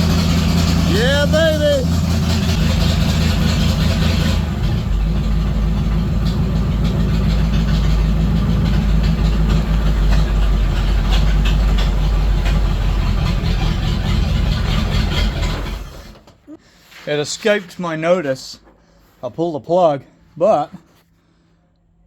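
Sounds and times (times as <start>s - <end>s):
truck engine running: 0.0s - 16.3s.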